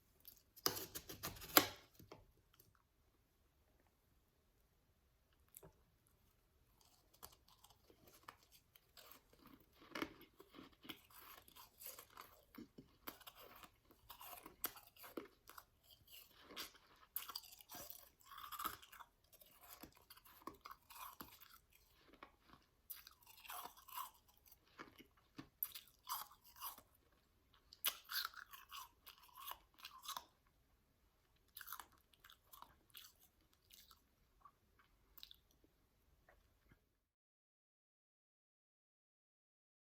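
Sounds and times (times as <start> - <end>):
person chewing shaved ice: 6.7 - 30.5, 31.3 - 35.6.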